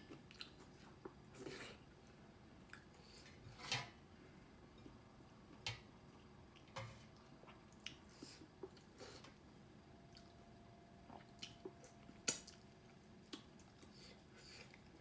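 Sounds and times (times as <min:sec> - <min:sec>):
wet chewing squishes and smacks: 0:00.1 - 0:01.2, 0:06.6 - 0:08.9, 0:10.1 - 0:10.4, 0:11.1 - 0:15.0.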